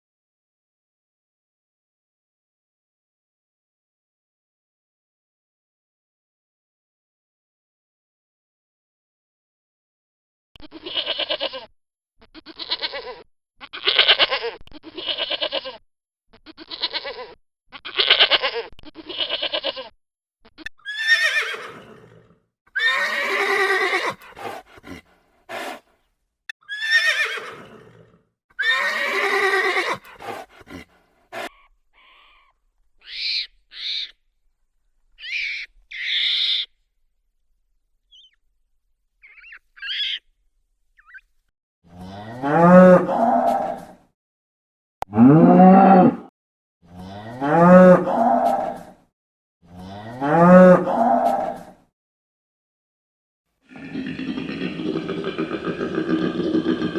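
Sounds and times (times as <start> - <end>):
short high animal calls: 31.4 - 34.2, 35.2 - 36.8, 39.2 - 40.3.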